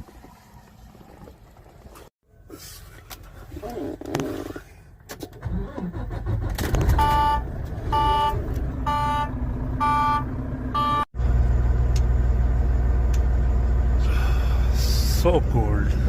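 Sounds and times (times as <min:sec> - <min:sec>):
vehicle engine rumbling: 0:00.0 - 0:16.0
dashboard warning chime: 0:08.0 - 0:11.1.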